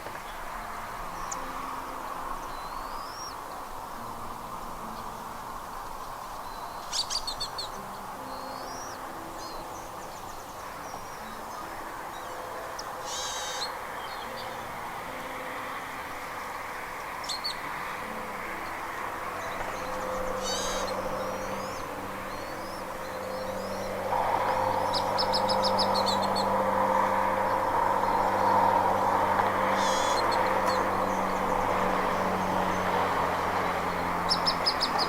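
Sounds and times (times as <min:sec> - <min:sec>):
steady background rush: 0:00.0 - 0:35.0
high bird calls: 0:06.3 - 0:15.4, 0:17.2 - 0:35.0.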